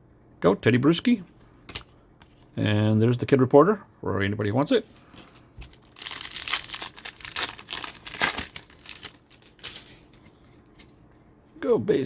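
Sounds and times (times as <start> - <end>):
foil wrapper crinkling and tearing: 5.6 - 10.1.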